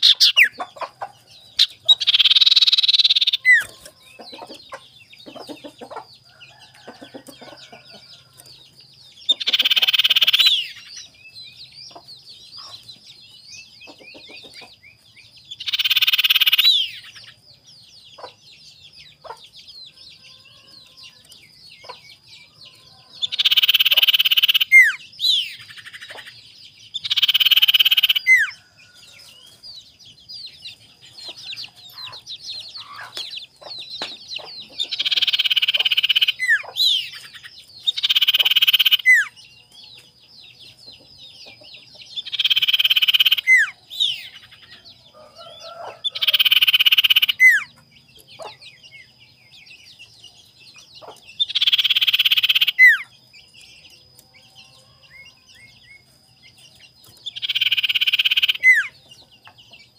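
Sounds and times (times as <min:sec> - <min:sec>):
harsh rasping bird calls: 0:00.0 - 0:08.6, 0:09.2 - 0:12.9, 0:15.5 - 0:17.4, 0:22.7 - 0:29.6, 0:31.1 - 0:39.5, 0:40.9 - 0:48.9, 0:51.0 - 0:53.2, 0:57.1 - 0:59.3.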